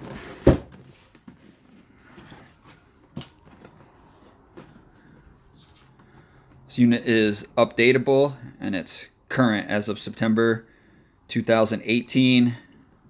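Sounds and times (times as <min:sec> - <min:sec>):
cardboard box rustling and scraping: 0:00.0 - 0:06.0.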